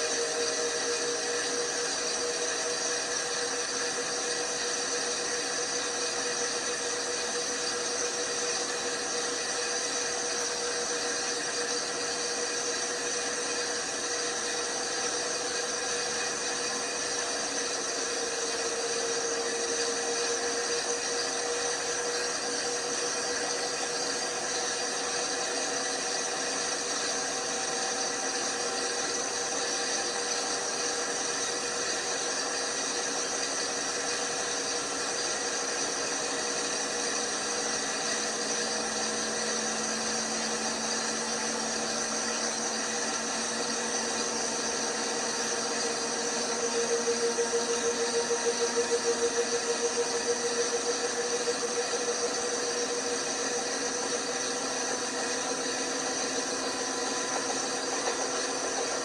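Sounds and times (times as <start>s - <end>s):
washing machine running: 0.0s - 59.0s.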